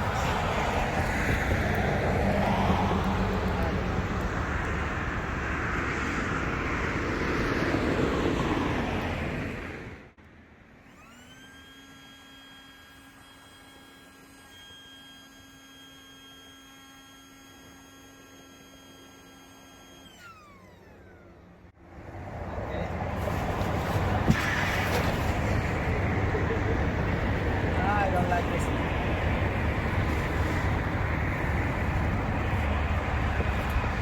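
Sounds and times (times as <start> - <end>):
small motor whirring: 10.8 - 21.7
loud steady rushing noise: 24.0 - 34.0.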